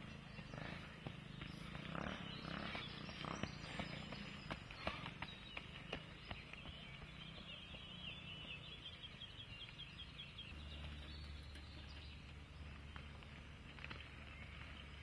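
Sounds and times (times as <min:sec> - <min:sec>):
small bird chirping: 0:00.0 - 0:15.0
footsteps on gravel: 0:11.8 - 0:15.0.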